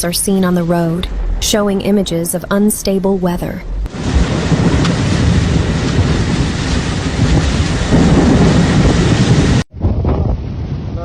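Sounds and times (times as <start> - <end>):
deep rumble: 0.0 - 11.0
wind: 0.0 - 11.0
heavy rain: 3.8 - 9.7.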